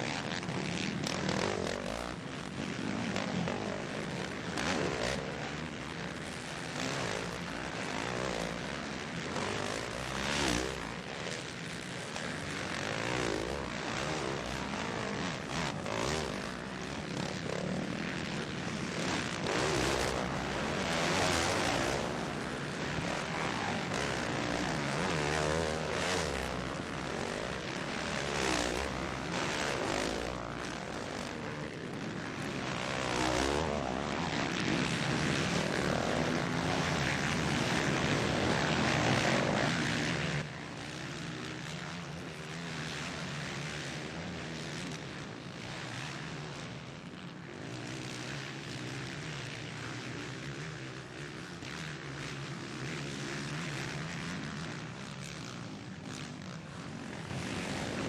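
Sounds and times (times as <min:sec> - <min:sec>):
motocross bikes revving: 0:02.9 - 0:42.9.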